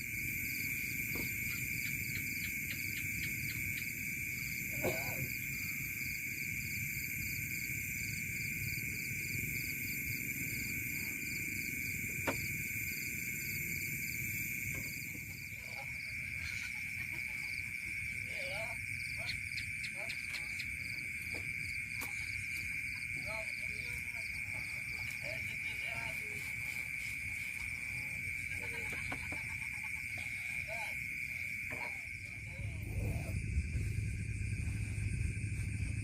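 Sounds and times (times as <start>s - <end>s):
frogs chirping: 0.0s - 36.0s
insects trilling: 0.0s - 36.0s
low background rumble: 32.1s - 36.0s.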